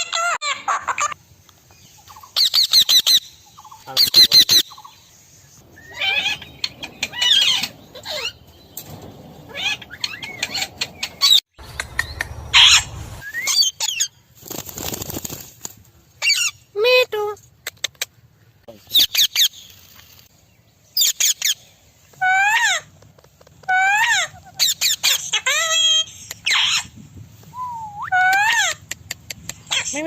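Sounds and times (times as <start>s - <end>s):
parrot screeching: 5.8s - 8.4s, 12.5s - 14.1s.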